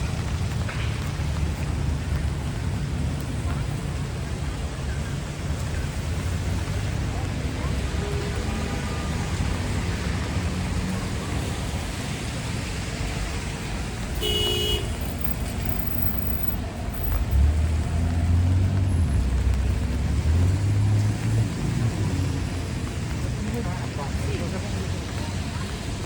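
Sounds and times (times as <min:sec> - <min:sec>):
street traffic: 0:00.0 - 0:26.0
car horn honk: 0:14.2 - 0:15.3.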